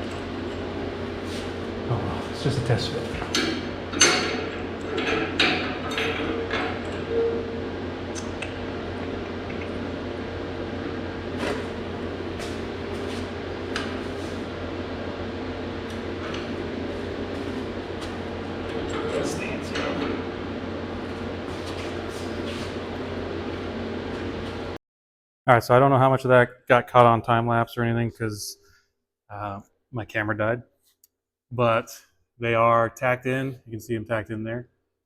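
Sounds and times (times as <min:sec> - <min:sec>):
steady electrical hum: 0:00.0 - 0:24.8.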